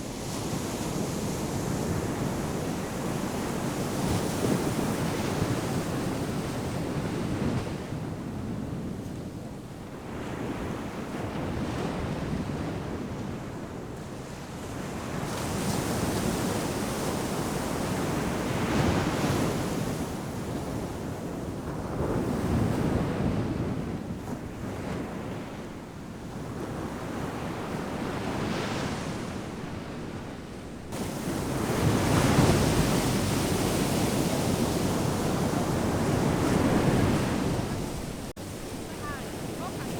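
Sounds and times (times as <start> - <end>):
ocean surf breaking: 30.9 - 39.9.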